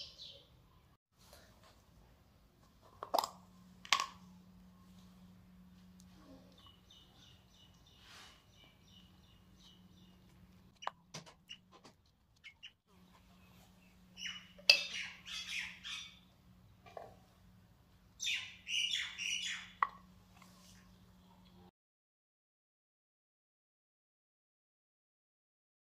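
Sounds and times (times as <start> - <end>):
small birds chirping: 0.0 - 1.0, 6.0 - 16.8, 18.2 - 20.0
low steady hum: 0.4 - 21.7.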